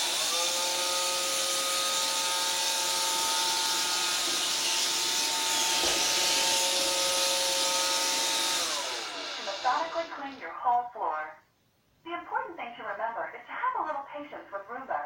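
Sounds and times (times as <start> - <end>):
robot vacuum running: 0.0 - 10.4.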